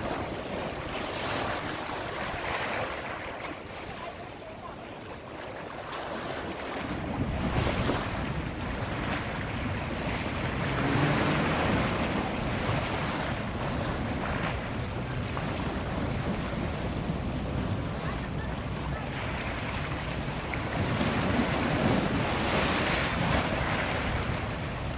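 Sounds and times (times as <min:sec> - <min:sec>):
waves washing against shore: 0:00.0 - 0:24.9
wind buffeting microphone: 0:06.4 - 0:24.9.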